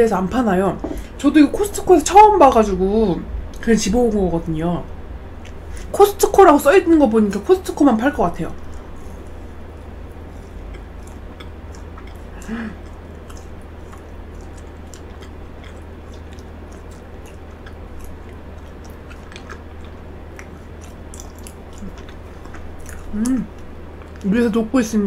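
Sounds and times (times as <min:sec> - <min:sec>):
chewing food: 0:05.3 - 0:24.6
wet mouth clicks: 0:10.1 - 0:24.3
person humming: 0:12.3 - 0:12.8, 0:23.1 - 0:23.5.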